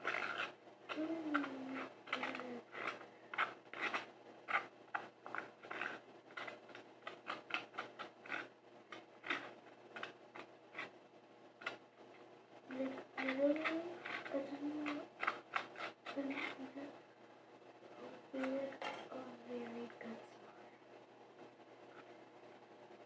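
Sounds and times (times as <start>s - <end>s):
rubbing and scraping strokes: 0.0s - 11.0s, 12.7s - 16.8s.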